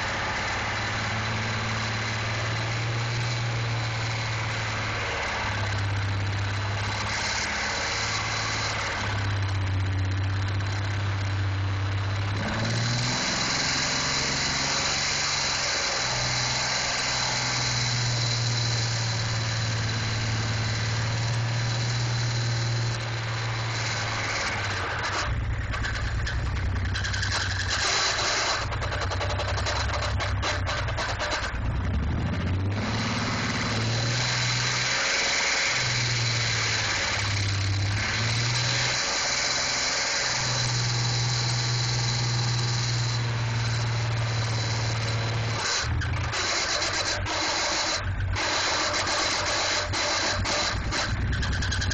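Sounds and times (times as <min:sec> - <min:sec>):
engine running hard: 0:00.0 - 0:51.9.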